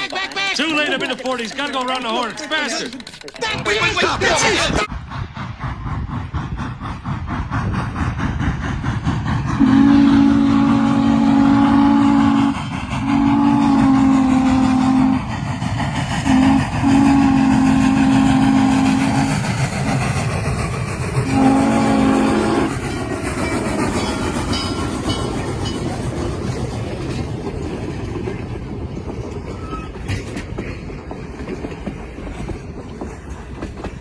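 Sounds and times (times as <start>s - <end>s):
locomotive rhythmic running: 0.0s - 34.0s
steam locomotive chime whistle: 9.6s - 15.3s, 16.3s - 19.3s, 21.2s - 26.0s, 29.5s - 30.1s.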